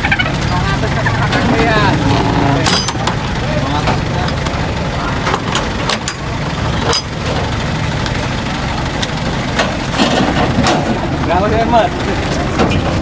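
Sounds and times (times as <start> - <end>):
truck engine idling: 0.0 - 13.0
sharp knocks and clatters: 9.0 - 11.3.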